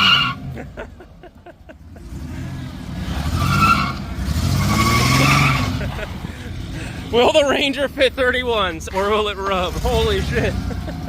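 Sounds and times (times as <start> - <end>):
tyre squeals: 0.0 - 0.4, 3.2 - 5.9
truck engine revving: 0.0 - 11.0.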